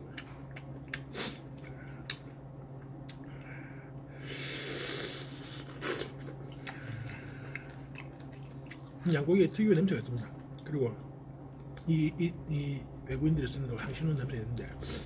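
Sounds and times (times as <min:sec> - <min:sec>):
steady low hum: 0:00.0 - 0:15.0
noisy breath through nose: 0:01.1 - 0:01.5, 0:03.5 - 0:06.1, 0:14.8 - 0:15.0.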